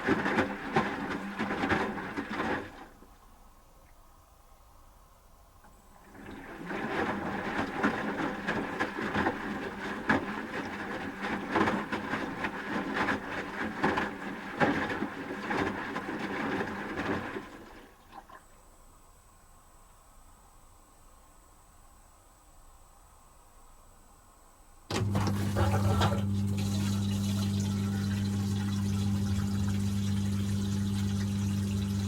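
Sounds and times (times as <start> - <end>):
laundry tumbling with knocks: 0.0 - 3.0, 6.0 - 18.0, 24.9 - 27.5
water sloshing: 0.0 - 3.4, 6.0 - 18.6, 24.9 - 32.0
washing machine drum turning: 24.9 - 32.0.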